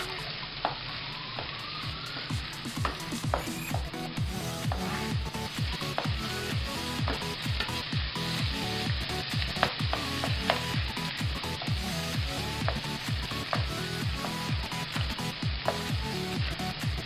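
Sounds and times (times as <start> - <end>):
meat sizzling in hot oil: 0.0 - 17.0
background music with a beat: 0.8 - 17.0
spatula scraping a pan: 4.7 - 5.3.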